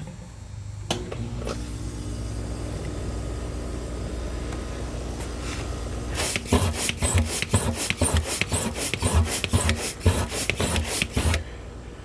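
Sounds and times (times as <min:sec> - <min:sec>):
hand pump rasping strokes: 0:06.2 - 0:11.4.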